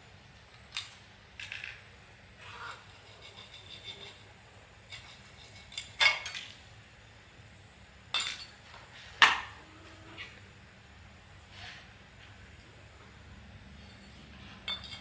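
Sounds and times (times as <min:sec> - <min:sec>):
metal tools clinking: 0:13.8 - 0:15.0.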